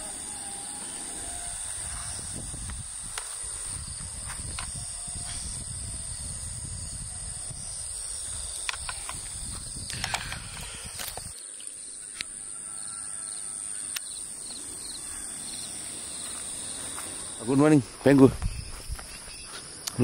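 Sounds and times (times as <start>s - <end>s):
insects droning: 0.0s - 20.0s
sharp clicks: 8.6s - 12.3s.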